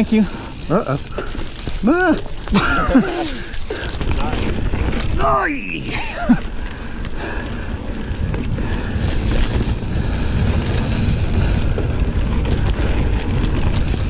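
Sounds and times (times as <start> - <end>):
bike clicks and rattles: 0.0 - 14.0
bike tyres rumbling on dirt: 0.0 - 14.0
wind on microphone: 6.2 - 14.0.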